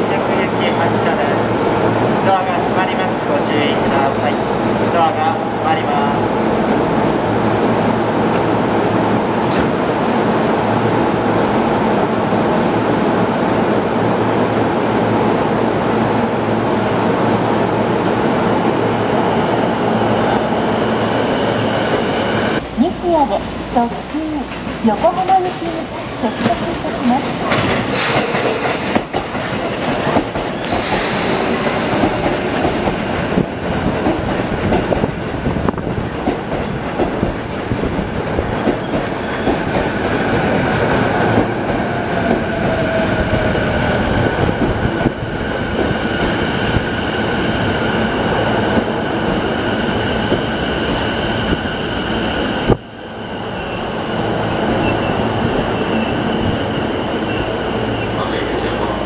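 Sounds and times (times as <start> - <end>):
train wheels rumbling on rails: 17.0 - 59.0.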